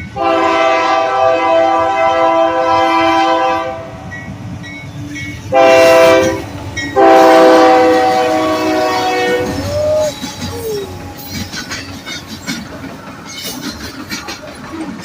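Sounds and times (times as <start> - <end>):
train rumble: 0.0 - 15.0
locomotive air horn blasts: 0.2 - 4.0, 5.5 - 9.7.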